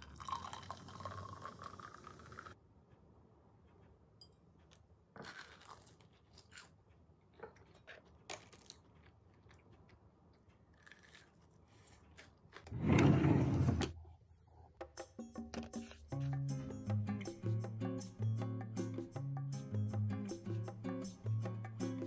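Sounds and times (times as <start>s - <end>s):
crunching and chewing fried food: 5.2s - 12.7s
wooden drawer sliding open: 12.7s - 13.9s.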